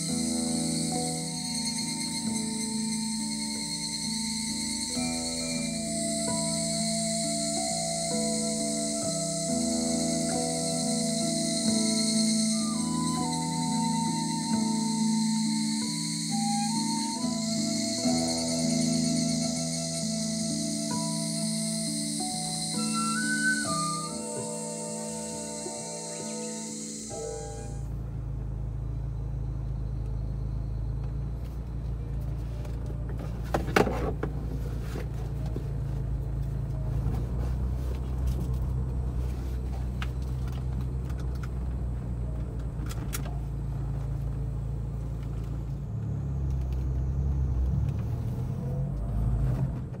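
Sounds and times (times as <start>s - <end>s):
car engine drone from inside cabin: 0.0s - 50.0s.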